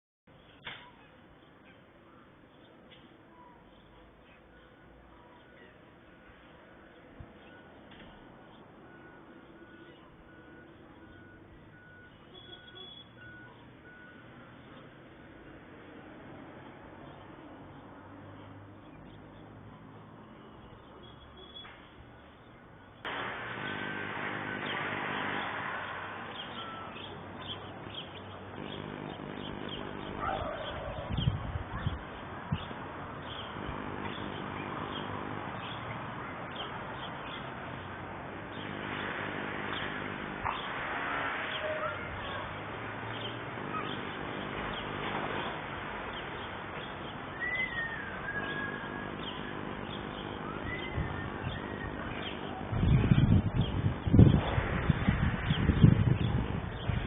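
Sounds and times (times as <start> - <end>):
birds chirping: 0.3 - 57.0
wavering whistled bird call: 11.2 - 13.6, 26.4 - 28.3, 47.3 - 49.6, 50.3 - 52.4
birds chirping and calling: 26.2 - 37.9, 41.5 - 57.0.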